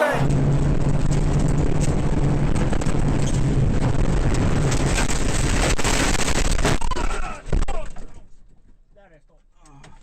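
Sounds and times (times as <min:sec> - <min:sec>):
rally car engine running: 0:00.2 - 0:06.6.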